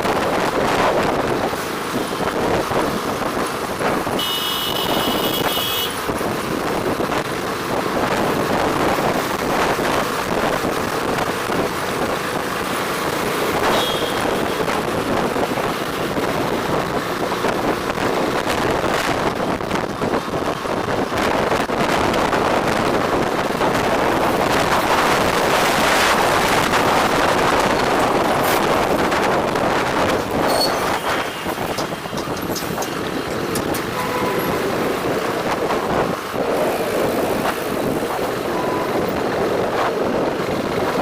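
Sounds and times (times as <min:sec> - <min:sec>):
road traffic: 0:00.0 - 0:41.0
wind rush on microphone: 0:00.0 - 0:41.0
high-pitched vehicle horn: 0:04.1 - 0:06.0, 0:13.6 - 0:14.6, 0:33.9 - 0:34.8.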